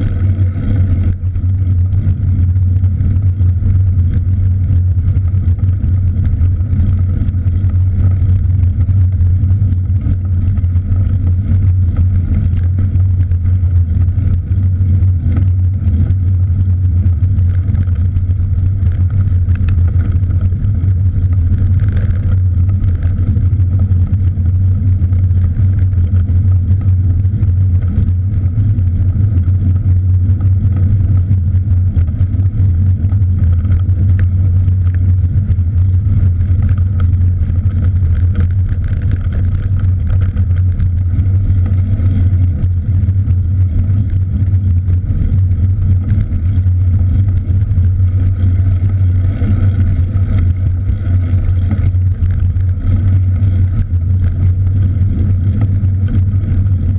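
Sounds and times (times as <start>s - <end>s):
bicycle tyre noise: 0.0s - 56.9s.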